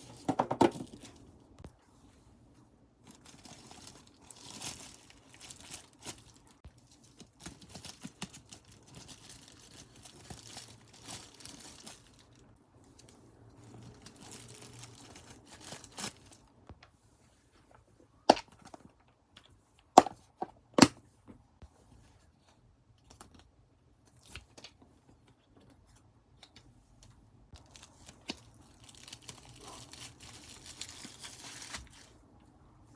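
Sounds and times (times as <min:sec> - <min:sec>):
plastic packaging crinkling and tearing: 0:00.0 - 0:01.2, 0:03.0 - 0:16.5, 0:27.6 - 0:32.2.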